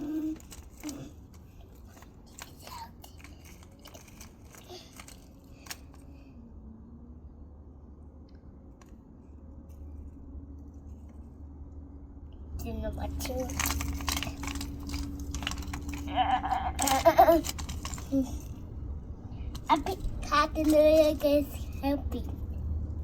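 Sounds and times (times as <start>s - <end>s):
toy trucks scraping through mud: 0.0s - 6.0s, 13.2s - 18.6s
steady low rumble: 0.0s - 23.0s.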